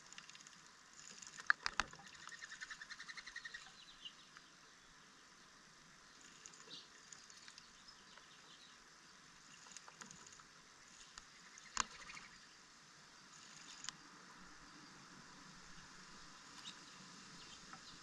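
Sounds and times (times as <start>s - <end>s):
birds splashing in water: 0.0s - 3.8s
light ticks: 6.2s - 8.3s, 13.4s - 14.0s.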